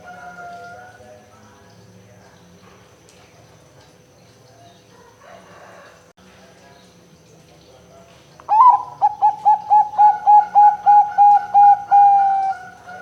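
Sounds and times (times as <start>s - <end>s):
dove cooing: 8.5s - 13.0s.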